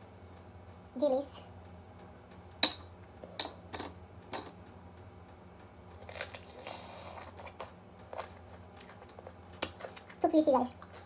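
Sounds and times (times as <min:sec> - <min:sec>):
crunching and chewing mango: 0:05.9 - 0:11.0.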